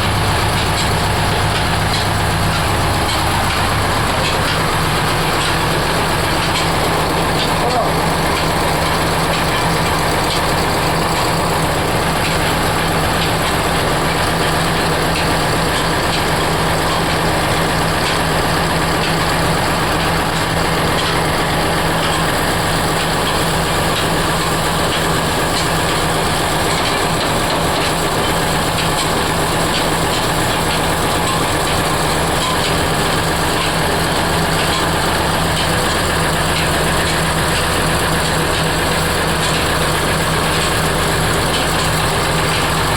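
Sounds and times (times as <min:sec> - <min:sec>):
heavy machinery drone: 0:00.0 - 0:42.9.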